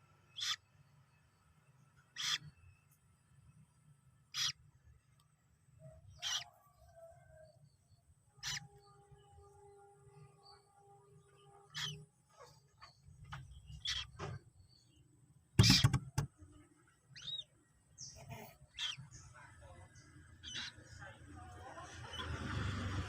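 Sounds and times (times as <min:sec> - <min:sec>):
moorhens calling and chirping: 0:00.3 - 0:00.7, 0:02.0 - 0:02.8, 0:04.3 - 0:04.6, 0:05.8 - 0:06.9, 0:08.4 - 0:08.9, 0:11.6 - 0:14.9, 0:15.6 - 0:16.0, 0:17.1 - 0:19.4, 0:20.0 - 0:21.0.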